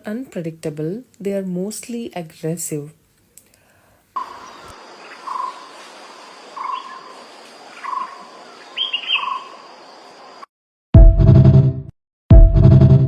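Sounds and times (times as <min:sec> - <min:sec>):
faint outdoor hiss: 0:00.0 - 0:10.4
bird calling: 0:04.2 - 0:09.6
high insect drone: 0:04.2 - 0:10.5.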